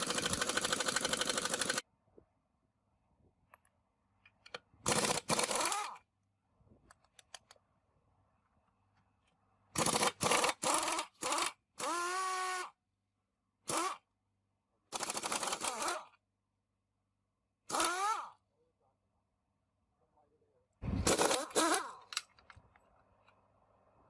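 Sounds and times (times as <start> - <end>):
power tool whirring: 0.0 - 1.8, 4.8 - 6.0, 9.8 - 12.8, 13.6 - 14.0, 15.0 - 16.2, 17.7 - 18.4, 20.9 - 22.1.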